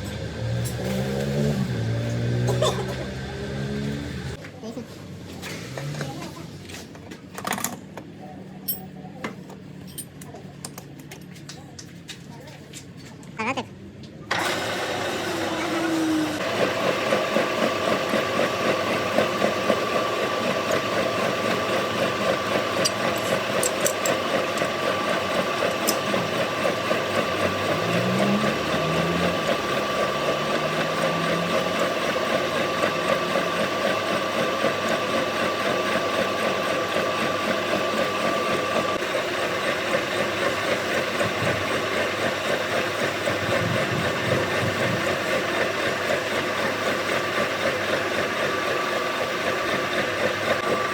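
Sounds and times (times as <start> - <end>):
machine tool pulsing: 14.3 - 50.9.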